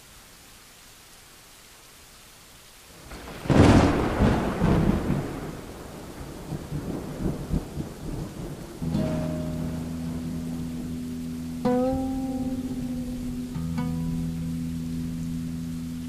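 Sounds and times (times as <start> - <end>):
rain hiss: 0.0 - 16.0
thunderclap rumbling: 3.0 - 13.6.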